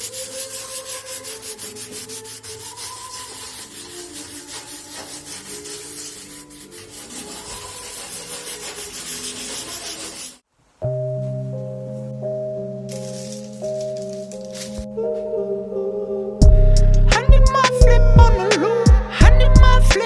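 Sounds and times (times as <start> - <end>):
sanding strokes: 0.0 - 10.4.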